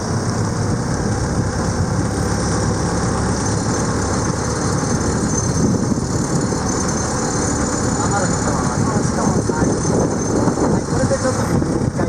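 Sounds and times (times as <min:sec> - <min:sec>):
boat engine running: 0:00.0 - 0:12.0
wind noise on microphone: 0:00.0 - 0:12.0.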